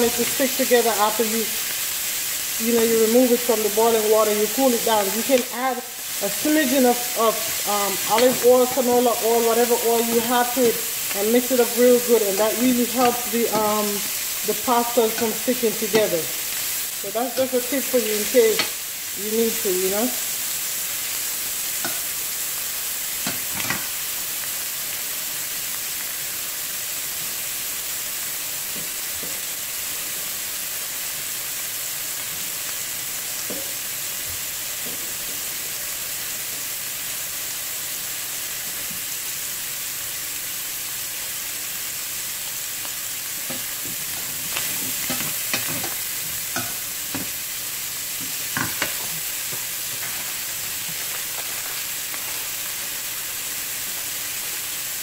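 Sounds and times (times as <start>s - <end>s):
ham sizzling in a pan: 0.0s - 55.0s
metal tongs scraping a pan: 6.1s - 8.9s, 9.6s - 18.8s, 43.5s - 47.4s, 48.2s - 52.6s.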